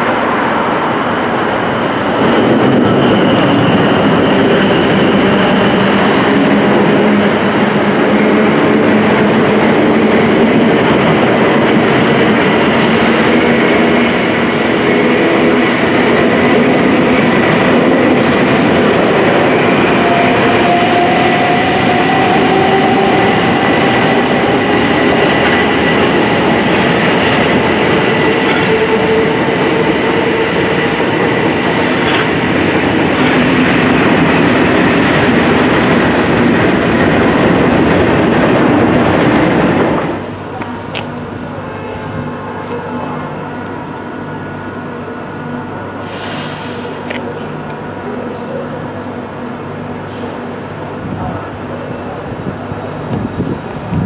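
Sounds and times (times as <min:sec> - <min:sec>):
diesel locomotives passing: 0:00.0 - 0:54.0
electric train whine: 0:00.0 - 0:54.0
wheels clattering over rails: 0:22.7 - 0:38.9.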